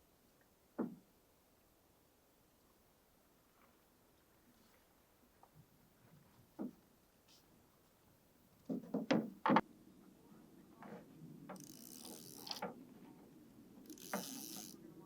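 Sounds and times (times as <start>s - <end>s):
sharp mechanical clicks: 13.9s - 14.8s.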